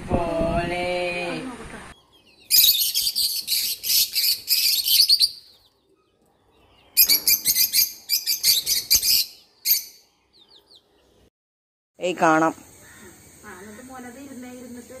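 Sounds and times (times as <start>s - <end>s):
birds chirping: 1.9s - 11.3s.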